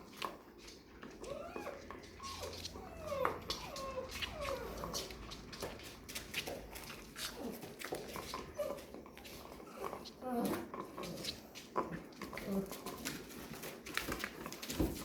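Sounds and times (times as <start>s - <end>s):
puppies whining: 1.0s - 11.5s.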